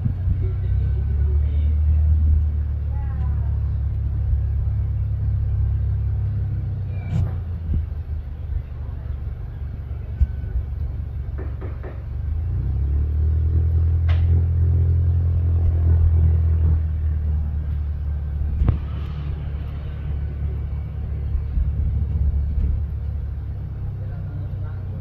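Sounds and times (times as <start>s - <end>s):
low engine rumble: 0.0s - 25.0s
short sharp knocks: 11.3s - 12.2s.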